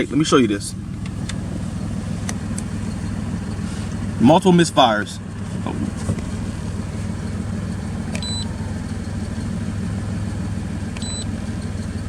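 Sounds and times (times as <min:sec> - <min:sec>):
car engine idling: 0:00.0 - 0:12.0
high electronic beeps: 0:11.0 - 0:11.3.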